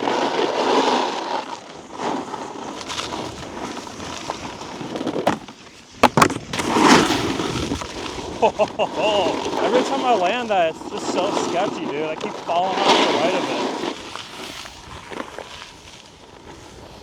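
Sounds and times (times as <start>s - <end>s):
snowboard scraping on icy snow: 0.0s - 17.0s
sharp knocks: 5.2s - 6.6s.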